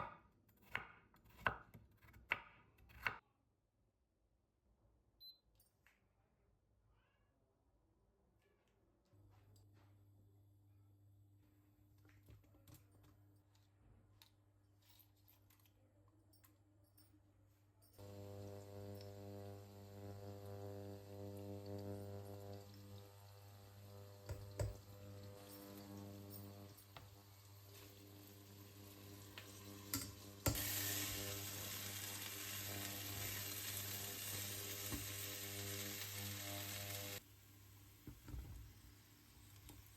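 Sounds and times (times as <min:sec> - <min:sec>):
food sizzling in hot oil: 0:18.0 - 0:37.2.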